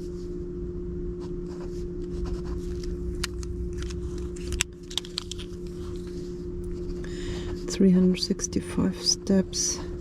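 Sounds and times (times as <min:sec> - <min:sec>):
steady low hum: 0:00.0 - 0:10.0
small objects clicking and rustling: 0:03.2 - 0:05.8.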